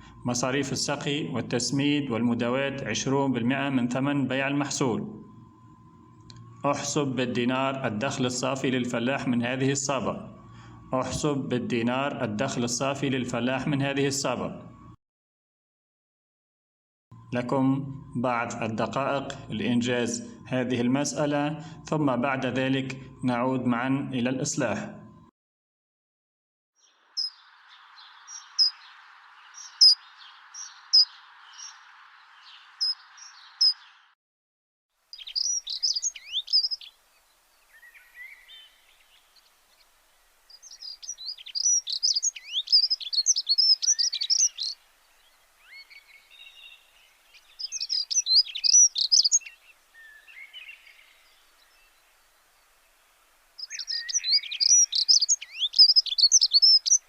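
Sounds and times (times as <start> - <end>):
songbirds chirping and trilling: 0.0 - 14.8, 26.8 - 34.2, 35.1 - 57.0.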